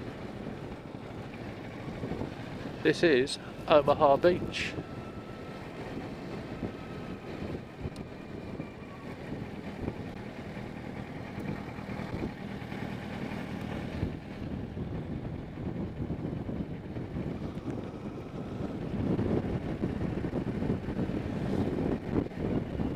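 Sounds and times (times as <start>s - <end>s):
wind and road noise: 0.0s - 22.9s
motorcycle engine running: 5.6s - 22.9s.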